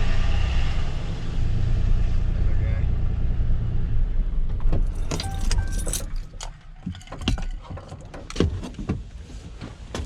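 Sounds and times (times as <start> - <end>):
clicks and knocks: 4.5 - 9.0.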